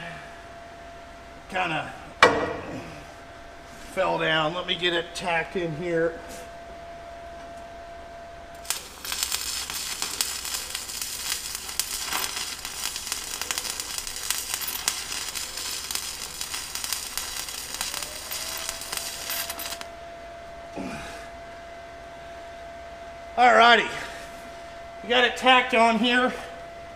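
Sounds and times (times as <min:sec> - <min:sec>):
thin steady whine: 0:00.0 - 0:26.9
welding arc crackling: 0:08.5 - 0:19.9
welding arc striking crack: 0:08.6 - 0:19.9.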